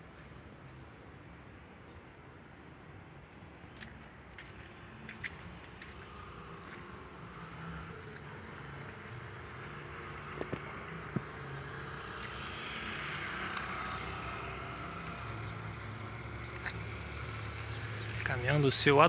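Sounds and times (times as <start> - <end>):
truck engine humming: 4.7 - 19.0.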